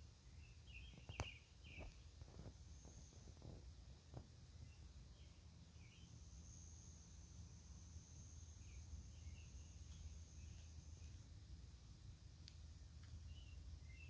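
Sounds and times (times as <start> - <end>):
faint bird chirps: 4.6 - 11.3.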